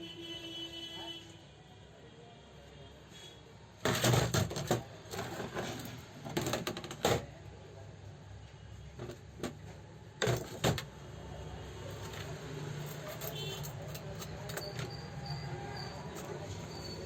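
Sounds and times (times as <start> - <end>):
sewing machine parts clattering: 3.8 - 7.3, 9.0 - 10.9, 11.8 - 17.0.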